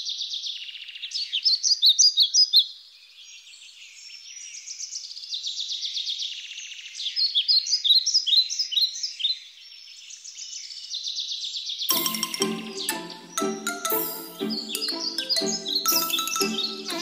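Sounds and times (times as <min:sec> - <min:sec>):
music cue: 0:11.9 - 0:17.0.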